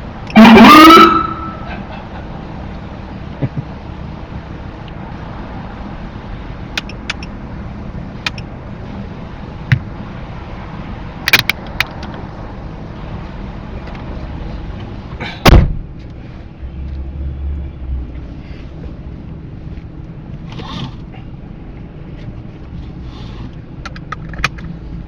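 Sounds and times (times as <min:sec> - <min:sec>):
vehicle rumble: 0:00.0 - 0:25.0
police siren whoop: 0:00.4 - 0:01.8
sharp clicks: 0:06.8 - 0:07.4, 0:08.2 - 0:08.5, 0:11.3 - 0:12.2.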